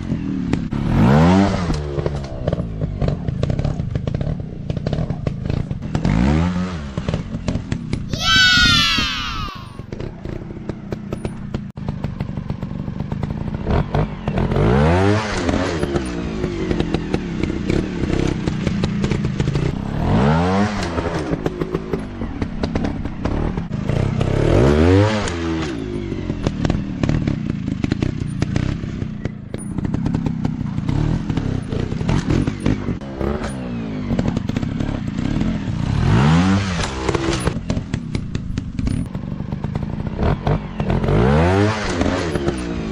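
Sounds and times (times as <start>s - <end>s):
dirt bike engines revving: 4.2s - 10.5s.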